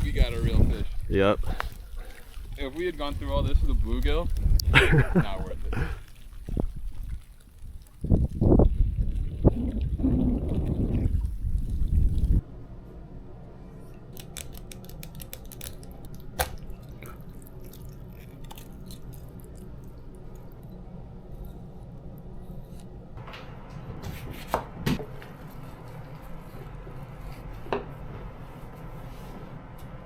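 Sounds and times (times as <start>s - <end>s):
low room hum: 9.5s - 30.0s.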